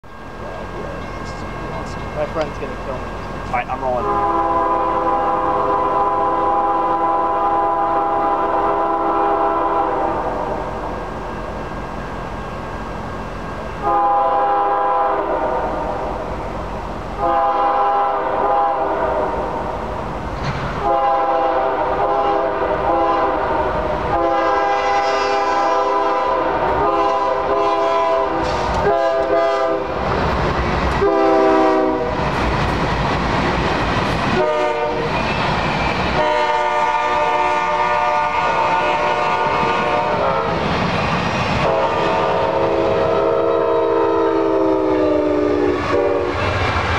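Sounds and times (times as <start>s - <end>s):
freight train clattering past: 0.0s - 46.9s
locomotive air horn blasts: 4.0s - 10.7s, 13.8s - 16.0s, 17.2s - 19.5s, 20.8s - 29.9s, 31.0s - 32.2s, 34.4s - 35.1s, 36.2s - 40.5s, 41.6s - 46.4s.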